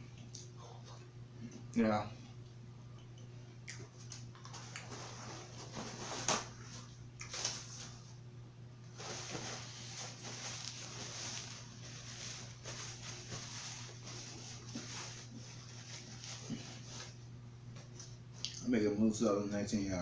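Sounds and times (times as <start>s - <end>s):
wet chewing and lip smacking: 3.0s - 4.9s.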